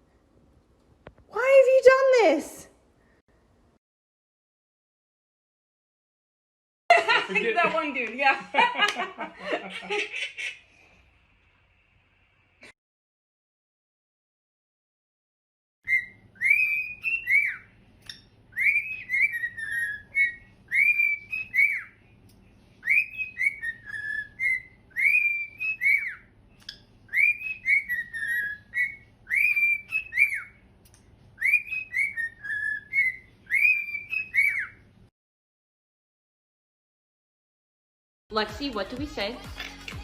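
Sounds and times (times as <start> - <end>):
parrot whistling a tune: 15.9 - 22.0, 22.8 - 30.6, 31.4 - 34.9.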